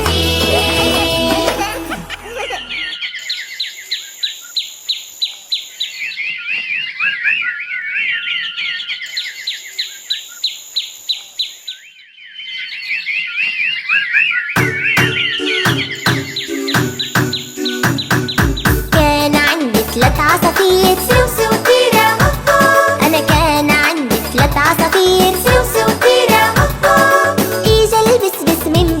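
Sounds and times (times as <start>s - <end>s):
music track with a beat: 0.0s - 1.9s, 14.6s - 29.0s
small birds twittering: 2.7s - 19.0s.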